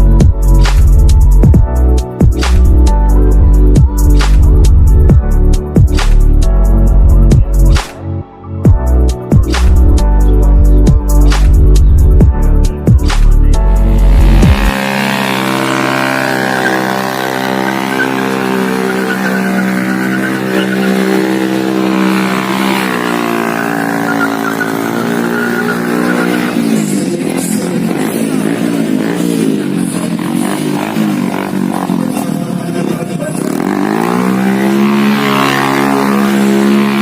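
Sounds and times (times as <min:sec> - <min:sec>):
motorcycle engine at high revs: 0:13.2 - 0:37.0.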